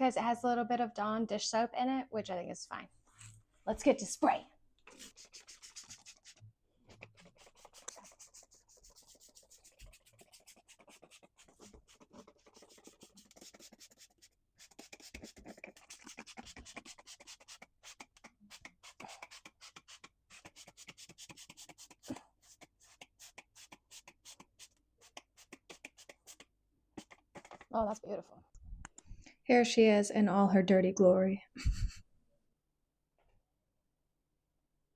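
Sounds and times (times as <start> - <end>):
spray bottle squirts: 4.9 - 8.6, 22.9 - 26.4.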